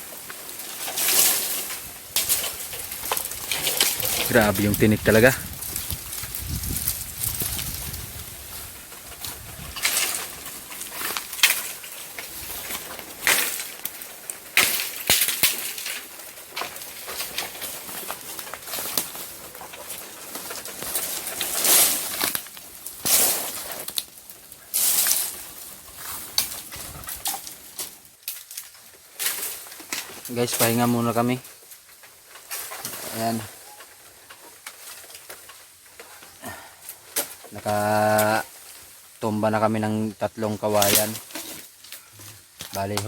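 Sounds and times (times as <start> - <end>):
stems and leaves rustling: 0.0 - 43.0.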